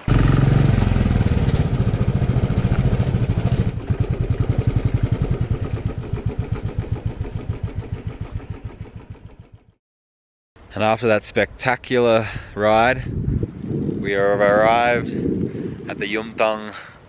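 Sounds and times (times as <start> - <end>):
motorcycle engine pulsing: 0.0 - 9.8.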